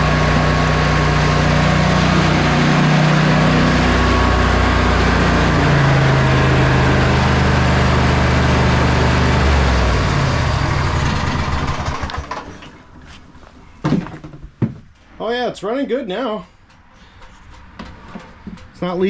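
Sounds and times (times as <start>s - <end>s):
lawn tractor engine running: 0.0s - 12.8s.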